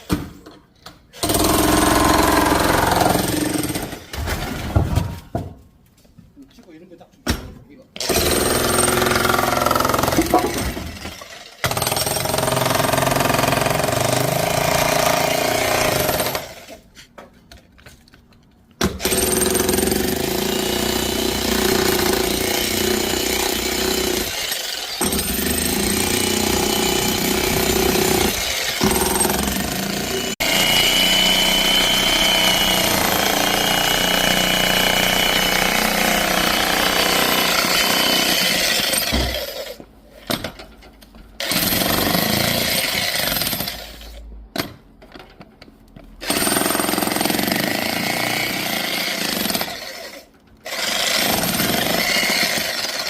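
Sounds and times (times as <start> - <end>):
electric demolition hammer chiseling: 1.2 - 4.2, 8.0 - 16.7, 18.8 - 39.8, 46.2 - 53.0.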